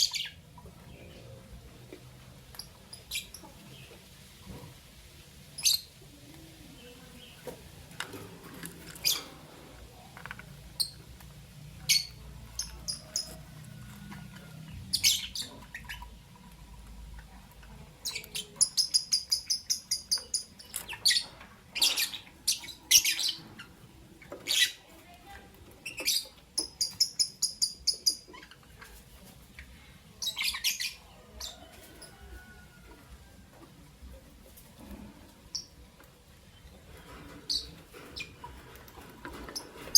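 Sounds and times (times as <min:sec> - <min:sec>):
lovebirds chirping: 0:00.0 - 0:04.6, 0:05.5 - 0:33.4, 0:34.1 - 0:39.9.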